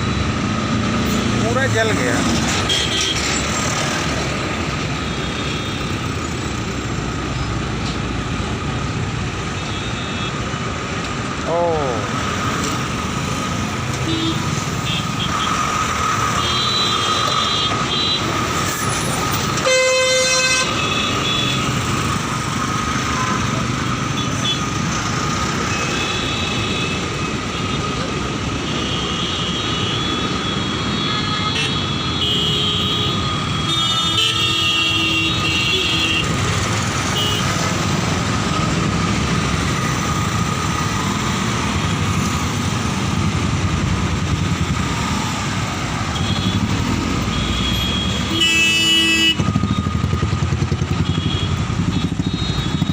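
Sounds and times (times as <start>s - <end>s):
road traffic noise: 0.0s - 52.9s
vehicle horns honking: 2.6s - 3.2s, 14.0s - 15.5s, 16.4s - 18.3s, 19.6s - 21.8s, 28.6s - 36.4s, 37.0s - 37.6s, 46.1s - 49.9s, 50.9s - 52.9s.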